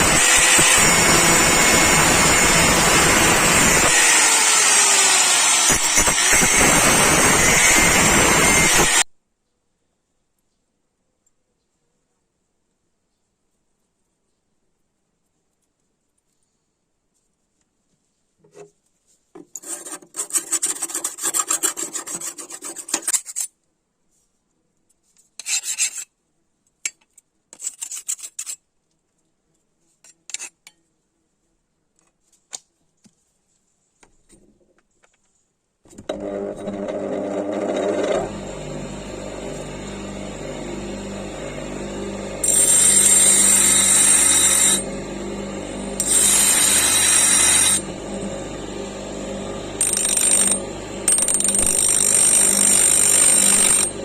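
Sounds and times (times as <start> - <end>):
electric grinder on steel: 0.0 - 9.1, 36.0 - 54.0
hand scraping on steel: 18.4 - 23.5, 25.2 - 26.2, 27.6 - 28.6.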